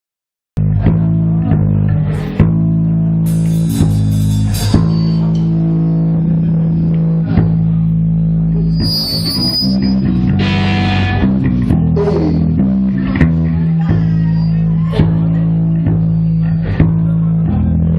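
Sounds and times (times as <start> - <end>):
punk rock band playing live: 0.6 - 8.9, 10.0 - 17.5
cymbal crashes: 3.3 - 5.6.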